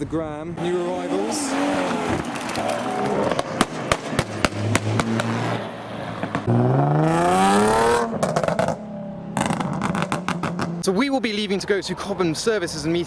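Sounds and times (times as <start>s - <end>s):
car engine idling and revving: 0.6s - 10.8s
exhaust pops and crackles: 1.2s - 5.6s, 8.0s - 8.8s, 9.4s - 10.9s.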